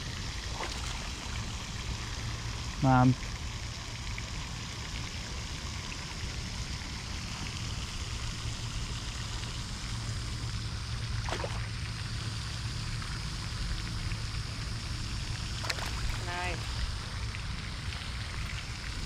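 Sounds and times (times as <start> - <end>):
low hum: 6.5 - 19.0.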